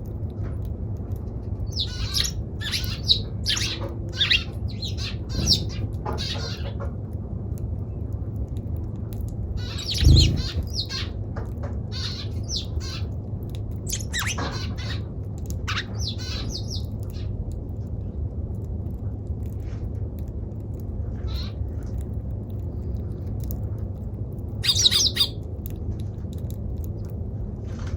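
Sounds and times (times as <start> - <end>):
steady low hum: 0.0 - 27.9
sparrow chirping and squawking: 1.6 - 6.7, 9.6 - 11.2, 11.9 - 13.1, 13.9 - 17.2, 21.3 - 21.5, 24.6 - 25.4.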